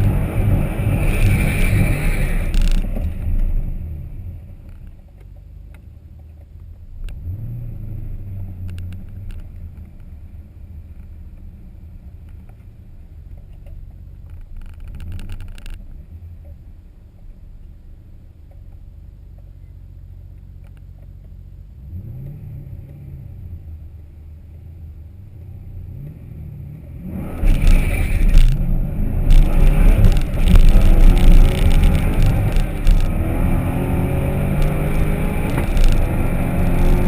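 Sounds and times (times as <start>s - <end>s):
car engine rumbling: 0.0s - 37.0s
ticking: 27.4s - 37.0s.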